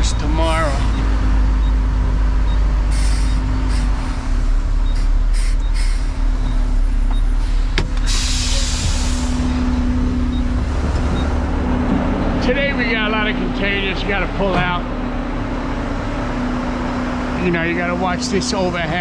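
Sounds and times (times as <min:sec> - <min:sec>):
diesel truck engine running: 0:00.0 - 0:19.0
short hiss of air: 0:07.5 - 0:09.4.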